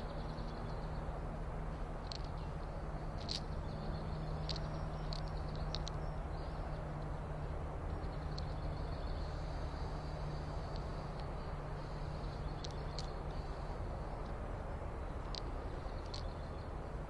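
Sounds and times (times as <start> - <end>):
low background rumble with hum: 0.0 - 17.0.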